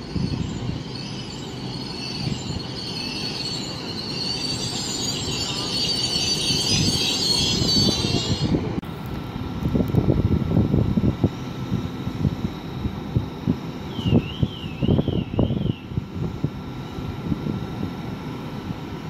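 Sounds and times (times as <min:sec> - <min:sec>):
train wheels and brakes squealing: 0:00.0 - 0:08.8, 0:13.8 - 0:16.0
low train running rumble: 0:00.0 - 0:19.0.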